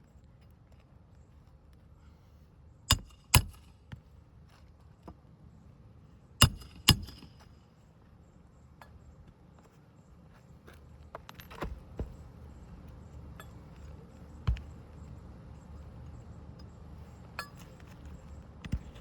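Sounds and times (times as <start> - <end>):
hammer striking roofing nails: 2.9 - 3.6, 6.4 - 7.3.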